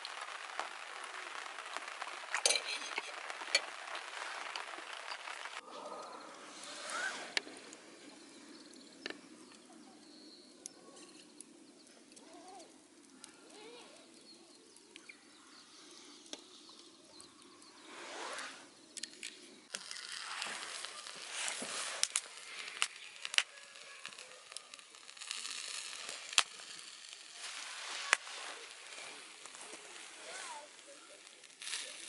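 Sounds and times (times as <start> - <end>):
griddle sizzling: 0.0 - 5.6, 6.4 - 32.0
campfire crackling: 0.0 - 32.0
sharp pops: 19.0 - 32.0.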